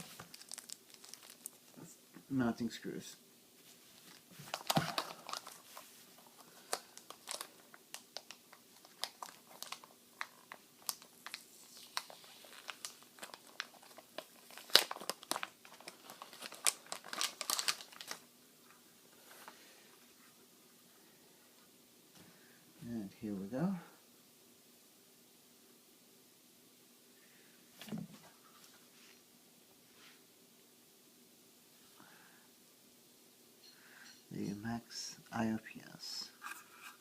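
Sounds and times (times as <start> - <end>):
plastic packaging crinkling: 0.0 - 1.9, 4.0 - 18.2.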